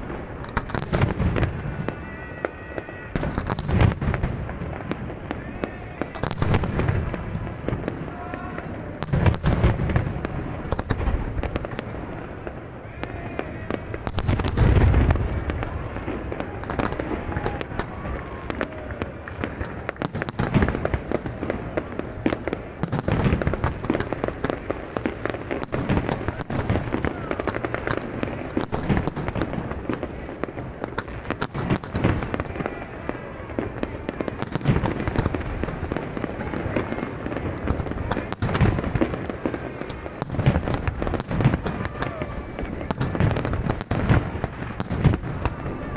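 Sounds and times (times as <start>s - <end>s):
fireworks booming: 0.0s - 45.9s
fireworks crackling and popping: 0.0s - 45.9s.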